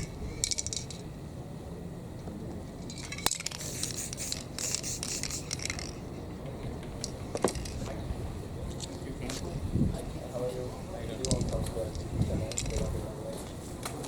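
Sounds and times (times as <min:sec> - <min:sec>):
aerosol spray can hissing: 0:03.5 - 0:05.6.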